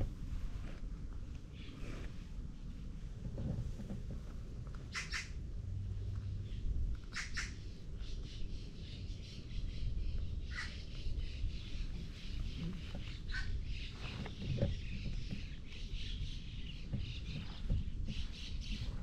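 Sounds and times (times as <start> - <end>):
steady low rumble: 0.0 - 19.0
birds squawking harshly: 4.8 - 5.4, 7.0 - 19.0.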